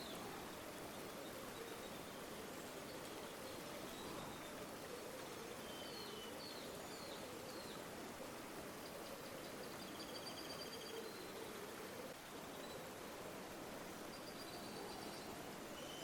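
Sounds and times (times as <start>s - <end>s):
river water flowing: 0.0s - 16.0s.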